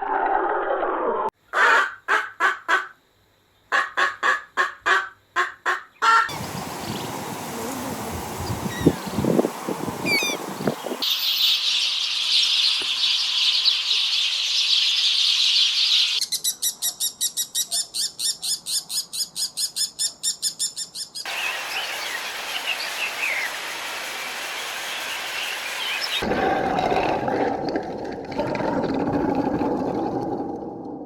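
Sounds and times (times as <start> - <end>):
bird trilling: 6.0 - 23.5
birds chirping: 6.3 - 23.6, 24.5 - 26.2.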